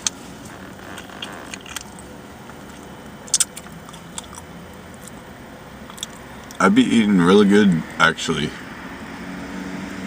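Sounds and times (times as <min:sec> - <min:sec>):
low steady hum: 0:00.0 - 0:10.0
person chewing food: 0:00.9 - 0:05.2, 0:05.8 - 0:06.6.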